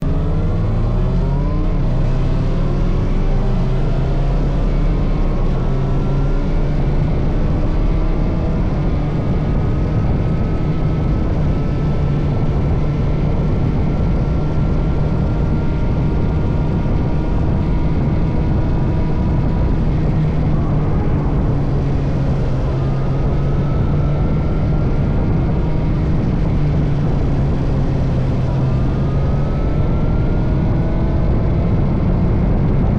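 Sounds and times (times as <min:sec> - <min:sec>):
motorcycle engine accelerating: 0:00.0 - 0:32.9
steady rushing noise: 0:00.0 - 0:32.9.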